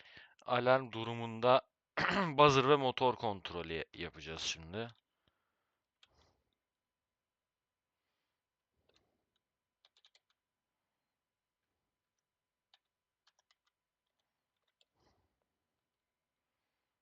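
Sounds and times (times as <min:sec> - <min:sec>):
faint keyboard typing: 0:08.8 - 0:10.4, 0:12.7 - 0:15.1.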